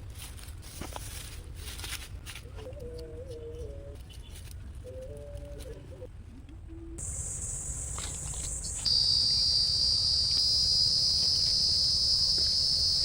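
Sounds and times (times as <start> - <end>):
high-pitched insect chorus: 7.0 - 13.0.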